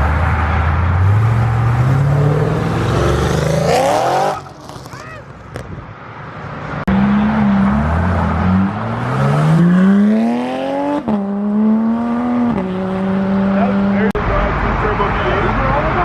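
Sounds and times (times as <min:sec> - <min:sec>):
car engine accelerating: 0:06.8 - 0:16.0.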